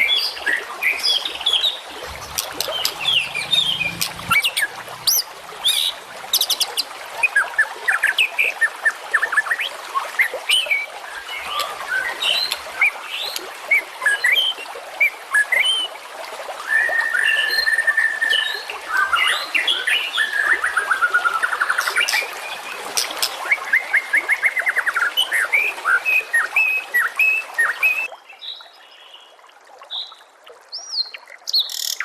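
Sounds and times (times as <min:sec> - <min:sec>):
songbirds singing and chirping: 0:02.0 - 0:06.8.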